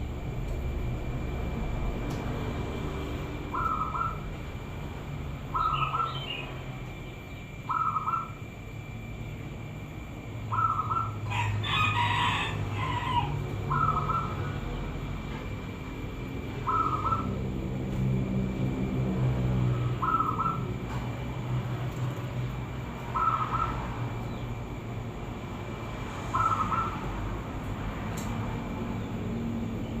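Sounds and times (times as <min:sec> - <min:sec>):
low steady hum: 0:00.0 - 0:30.0
dove cooing: 0:03.5 - 0:04.4, 0:05.5 - 0:06.4, 0:07.7 - 0:08.4, 0:10.5 - 0:14.8, 0:16.5 - 0:17.4, 0:19.7 - 0:21.0, 0:23.0 - 0:24.1, 0:26.3 - 0:27.2.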